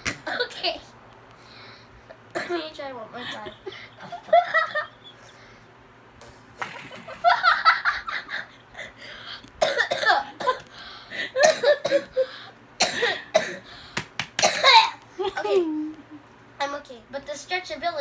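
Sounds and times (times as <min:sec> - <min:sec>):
boy coughing: 0:00.2 - 0:00.7, 0:02.4 - 0:02.7, 0:09.6 - 0:10.6, 0:11.3 - 0:13.7, 0:14.4 - 0:15.0.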